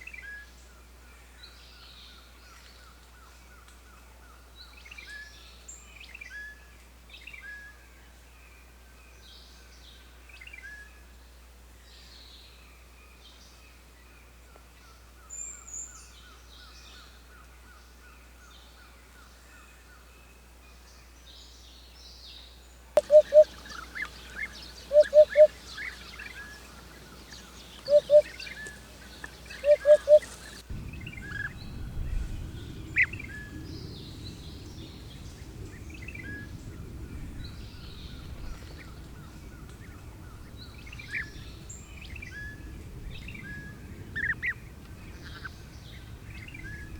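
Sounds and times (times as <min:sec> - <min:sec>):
birds chirping and singing: 0:23.0 - 0:30.6
loud short bird calls: 0:23.0 - 0:30.6.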